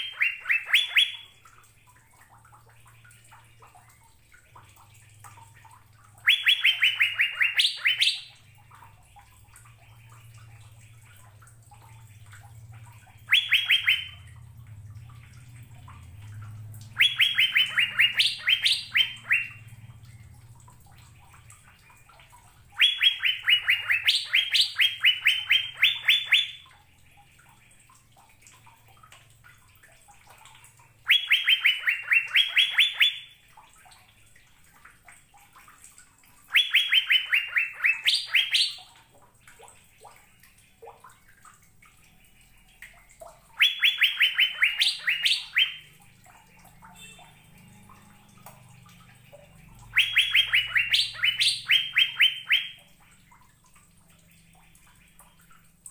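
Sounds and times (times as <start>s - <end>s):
bird song bursts of clear notes: 6.2s - 8.4s, 13.3s - 14.3s, 16.9s - 19.7s, 22.7s - 26.7s, 31.1s - 33.4s, 36.5s - 38.8s, 43.6s - 46.0s, 49.9s - 52.8s.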